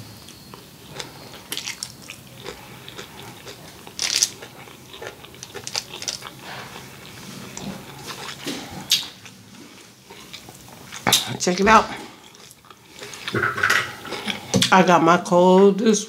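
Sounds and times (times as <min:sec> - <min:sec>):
person chewing noodles: 0:00.2 - 0:14.7.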